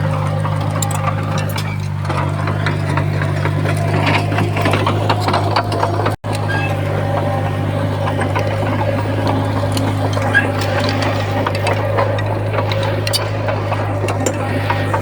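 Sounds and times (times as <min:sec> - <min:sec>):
bulldozer diesel engine running: 0:00.0 - 0:15.0
clanks and rattles: 0:00.0 - 0:15.0.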